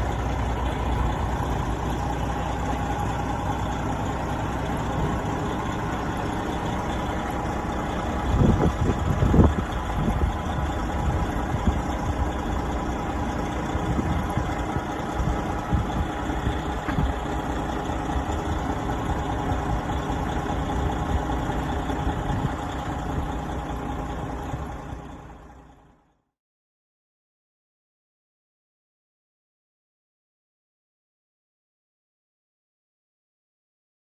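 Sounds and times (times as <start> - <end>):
engine knocks: 0.0 - 25.9
diesel truck engine idling: 0.0 - 26.2.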